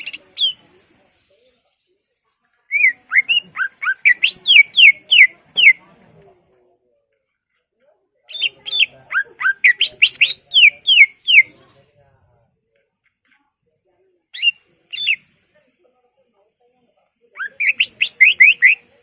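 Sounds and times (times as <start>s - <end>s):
bird singing whistled notes: 0.0s - 5.8s, 8.3s - 11.6s, 14.3s - 15.2s, 17.4s - 19.0s.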